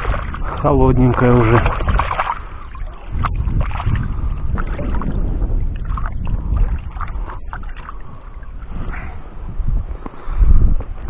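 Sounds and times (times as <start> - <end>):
hands splashing water: 0.0 - 8.2
wind rumbling on microphone: 0.0 - 11.0.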